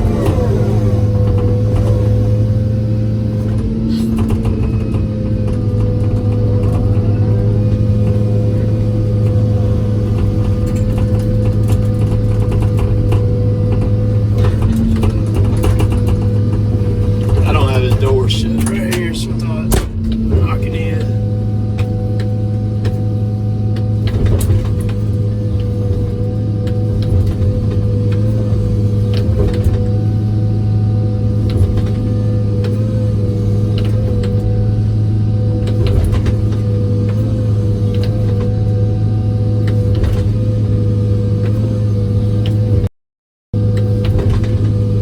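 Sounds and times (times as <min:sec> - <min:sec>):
wavering whine: 0:00.0 - 0:42.4
excavator diesel engine running: 0:00.0 - 0:42.9, 0:43.6 - 0:45.0
clicks and clanks: 0:10.2 - 0:21.1.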